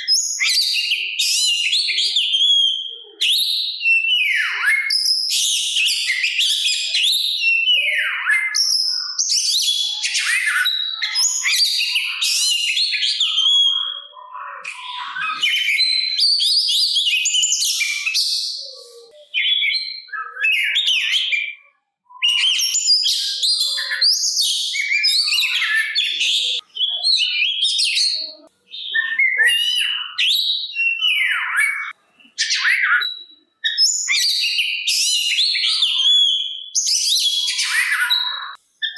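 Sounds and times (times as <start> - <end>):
bird singing whistles and trills: 0.0 - 38.9.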